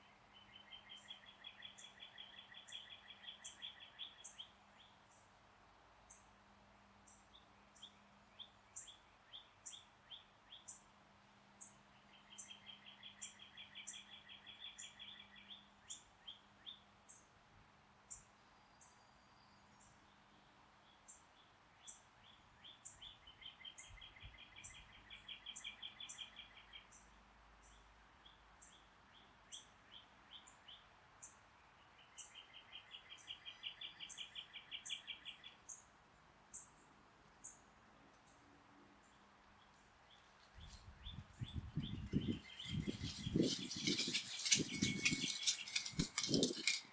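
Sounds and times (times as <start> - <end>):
high thin bird chirps: 41.0 - 46.9.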